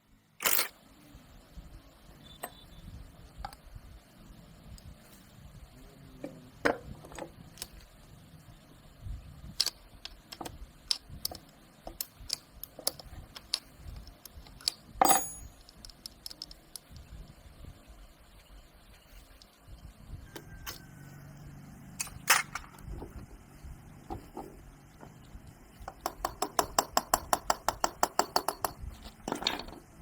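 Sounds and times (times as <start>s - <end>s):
metal tools clinking: 14.6s - 16.5s, 29.0s - 29.8s
ringing metal clank: 15.0s - 15.6s.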